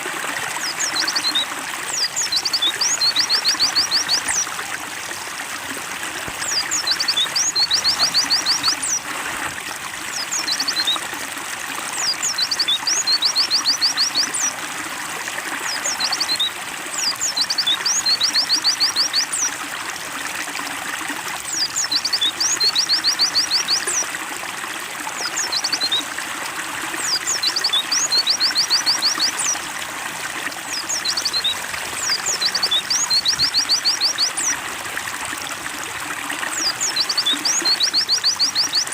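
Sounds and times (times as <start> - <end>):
water trickling: 0.0 - 38.9
bird singing high phrases: 0.6 - 4.5, 6.4 - 9.0, 10.1 - 11.0, 12.0 - 14.5, 15.7 - 19.5, 21.5 - 24.1, 25.2 - 26.0, 27.0 - 29.6, 30.7 - 34.6, 36.5 - 38.9.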